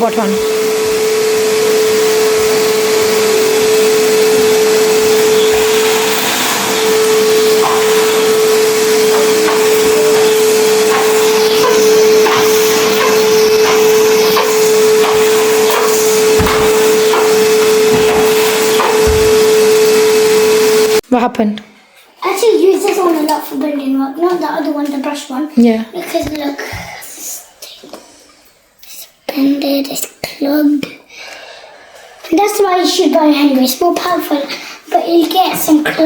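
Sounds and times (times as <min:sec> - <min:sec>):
vacuum cleaner whining: 0:00.0 - 0:21.0.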